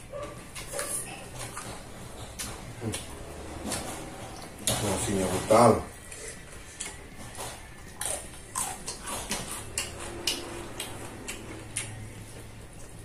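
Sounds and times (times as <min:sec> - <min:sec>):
wet chewing smacks and clicks: 0:06.0 - 0:13.0.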